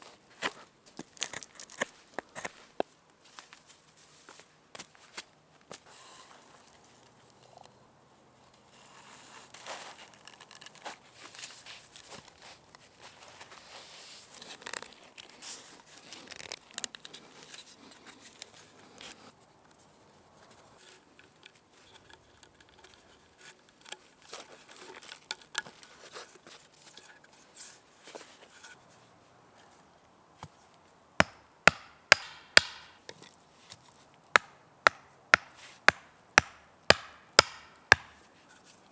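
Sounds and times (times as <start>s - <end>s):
rustling and scraping on wood: 0.0s - 7.6s, 8.5s - 30.8s, 33.0s - 34.1s, 37.7s - 38.9s
wooden hammer knocking: 31.2s - 32.9s, 34.4s - 38.2s.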